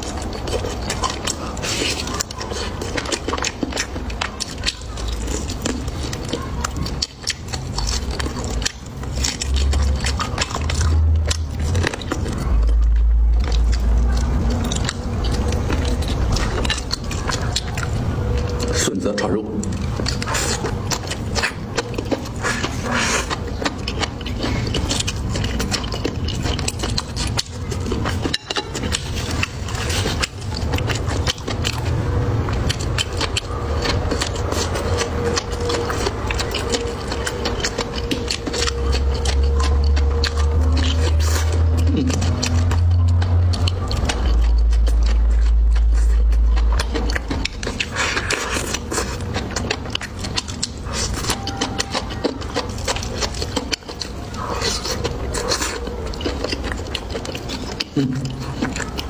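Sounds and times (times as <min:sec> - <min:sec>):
food crunching and chewing: 0:00.0 - 0:59.0
wet mouth clicks: 0:00.0 - 0:59.0
deep low rumble: 0:23.8 - 0:59.0.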